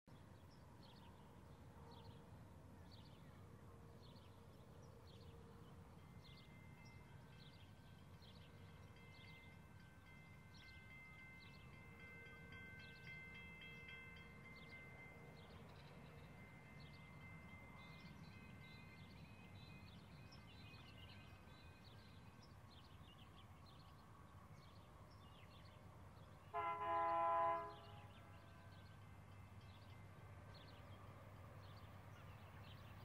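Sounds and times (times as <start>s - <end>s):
distant trains rumbling: 0.2s - 33.0s.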